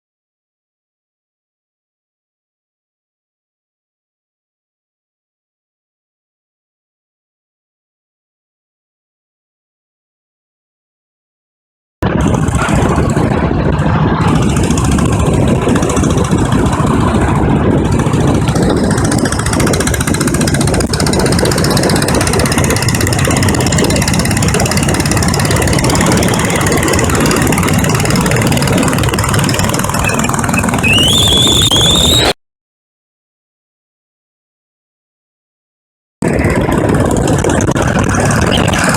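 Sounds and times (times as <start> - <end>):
motorcycle engine running: 12.0 - 32.3, 36.2 - 38.9.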